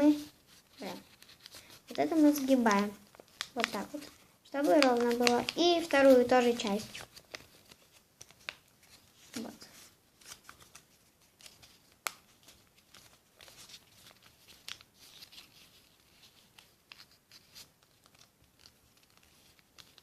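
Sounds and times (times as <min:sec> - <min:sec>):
paper crinkling and creasing: 0:00.0 - 0:20.0
paper snap: 0:02.7 - 0:08.6, 0:11.4 - 0:12.6.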